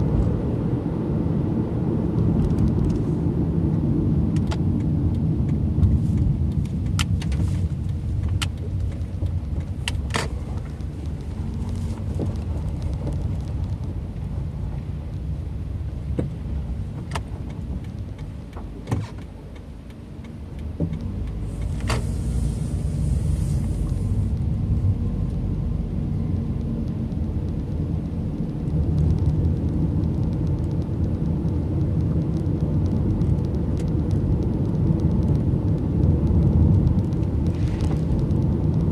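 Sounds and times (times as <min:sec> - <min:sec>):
car road and engine rumble: 0:00.0 - 0:38.9
sharp clicks and knocks: 0:04.3 - 0:15.3, 0:16.0 - 0:22.2.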